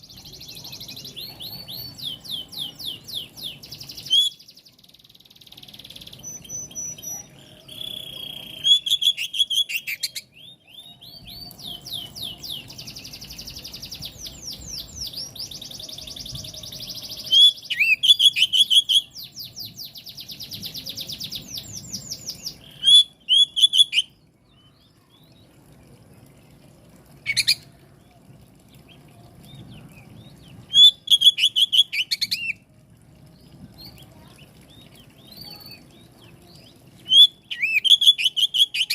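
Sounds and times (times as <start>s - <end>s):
bird singing trills: 0.0s - 25.7s, 27.2s - 27.7s, 28.8s - 32.6s, 33.3s - 38.9s.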